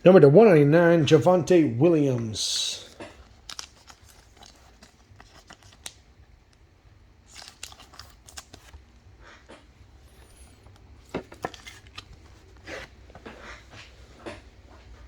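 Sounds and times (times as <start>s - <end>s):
cards clicking and rustling: 2.8s - 14.5s.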